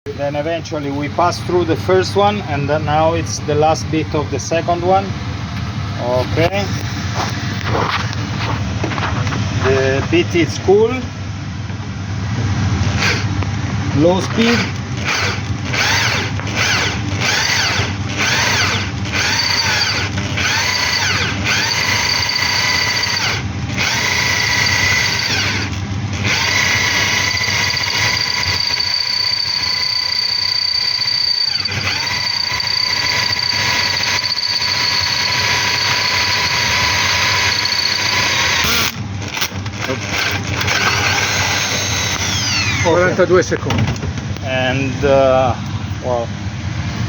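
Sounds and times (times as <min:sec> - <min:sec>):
power drill boring through metal: 0:12.8 - 0:13.4, 0:14.1 - 0:43.2.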